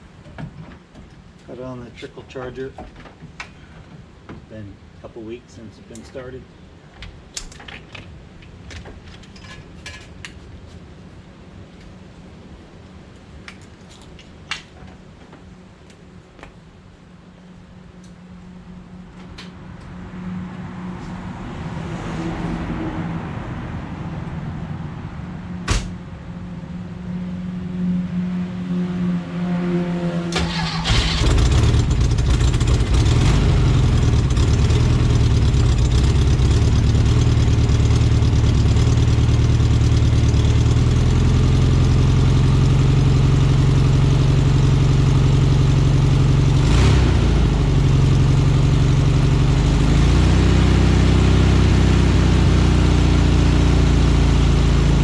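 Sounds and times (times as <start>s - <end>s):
engine cranking: 30.3s - 34.8s
car engine idling: 30.4s - 46.6s.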